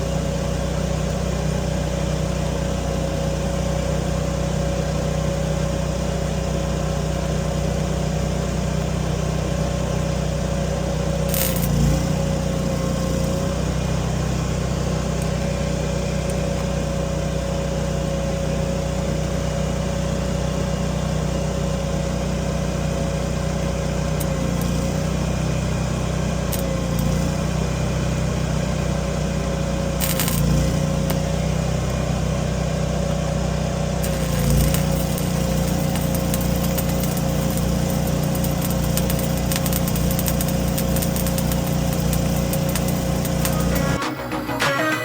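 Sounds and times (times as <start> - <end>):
heavy equipment engine whining: 33.9 - 45.0.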